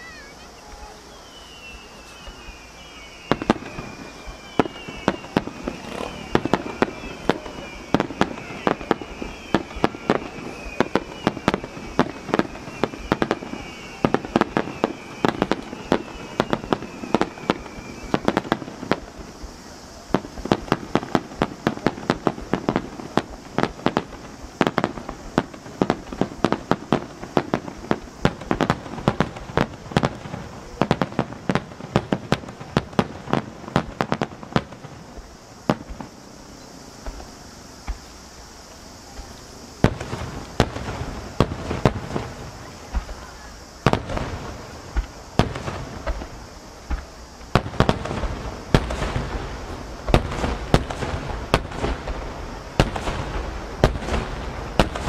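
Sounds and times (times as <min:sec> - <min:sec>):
high descending whistle: 0:00.0 - 0:20.5
fireworks bursting: 0:00.0 - 0:55.0
fireworks crackle: 0:00.0 - 0:55.0.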